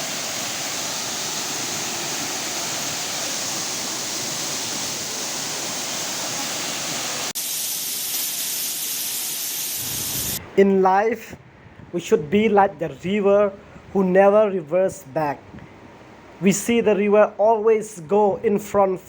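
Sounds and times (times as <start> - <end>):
hiss of water: 0.0 - 10.4
waterfall rushing: 0.0 - 10.4.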